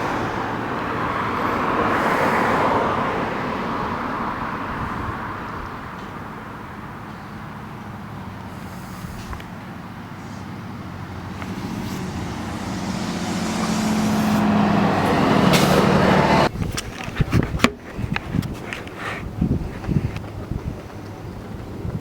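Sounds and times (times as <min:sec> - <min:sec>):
vehicle driving past: 0:09.8 - 0:16.5.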